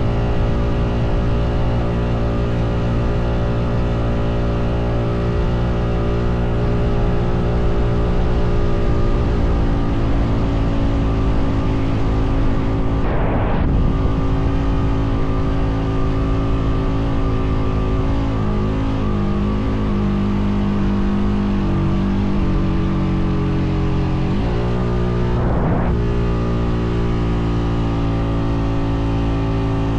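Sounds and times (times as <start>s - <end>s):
brief rushing sweep: 12.5s - 15.3s, 24.4s - 26.6s.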